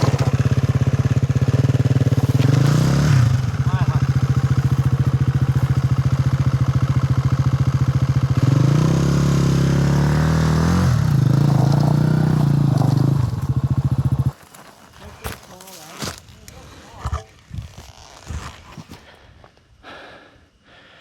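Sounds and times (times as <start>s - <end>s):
motorcycle engine idling and revving: 0.0s - 14.4s.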